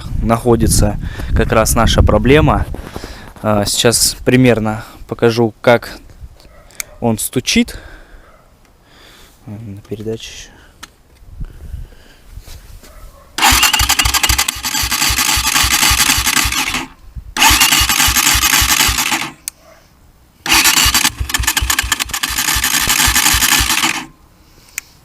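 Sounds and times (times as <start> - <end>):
motorcycle engine knocking clatter: 13.4 - 16.8, 17.4 - 19.3, 20.5 - 24.0.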